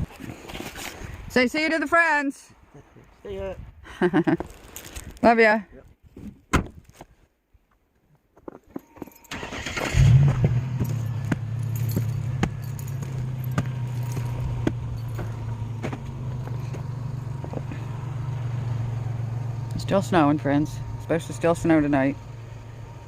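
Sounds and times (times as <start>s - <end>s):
car engine starting and idling: 8.8s - 23.0s.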